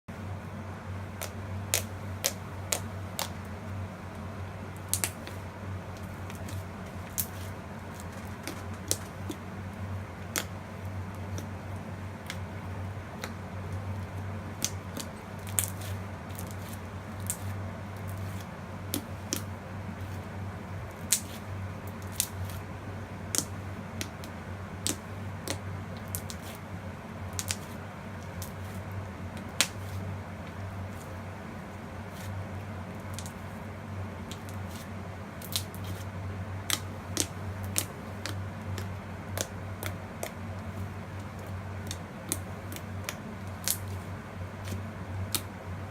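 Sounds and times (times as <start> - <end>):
slime clicking and popping: 4.8 - 5.4, 27.3 - 27.7, 36.6 - 40.4, 41.2 - 44.0.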